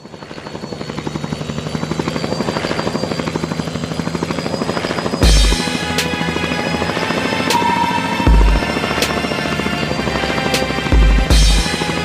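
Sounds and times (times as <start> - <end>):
helicopter rotor chopping: 0.0 - 12.0
band music: 7.5 - 9.2
heavy low thump: 8.3 - 8.7.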